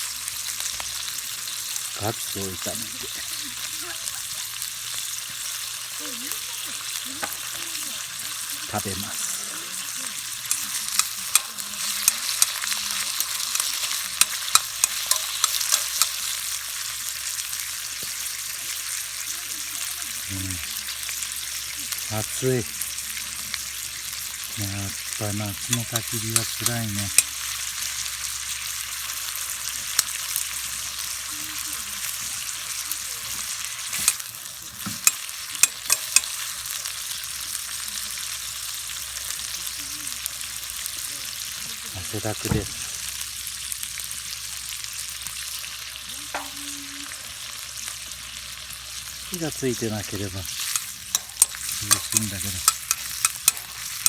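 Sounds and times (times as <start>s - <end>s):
meat sizzling in a skillet: 0.0s - 54.0s
clicks and pops of stirring: 6.6s - 16.7s, 25.5s - 27.7s, 33.2s - 36.6s, 46.3s - 46.7s, 50.5s - 54.0s.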